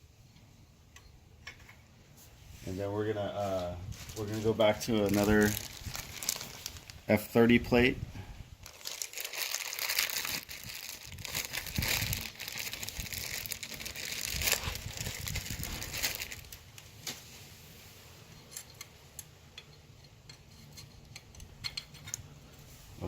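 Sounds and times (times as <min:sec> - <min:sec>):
paper crinkling and rustling: 0:03.5 - 0:07.0, 0:08.6 - 0:17.3.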